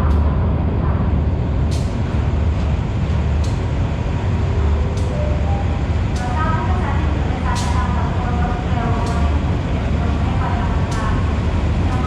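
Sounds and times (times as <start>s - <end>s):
train rumbling at platform: 0.0s - 12.0s.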